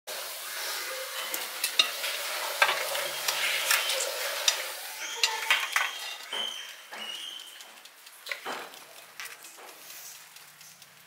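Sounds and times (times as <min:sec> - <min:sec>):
food sizzling in a pan: 0:00.1 - 0:07.0
utensil scraping a pan: 0:00.7 - 0:06.6.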